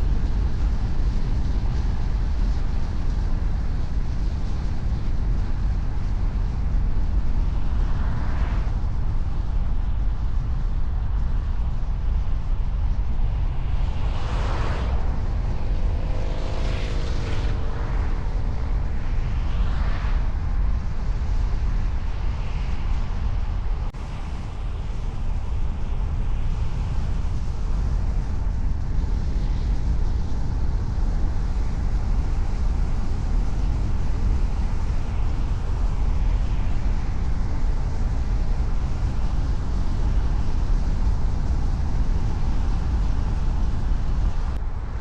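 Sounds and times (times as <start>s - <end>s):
car road and engine rumble: 0.0s - 45.0s
passing traffic: 13.1s - 20.9s.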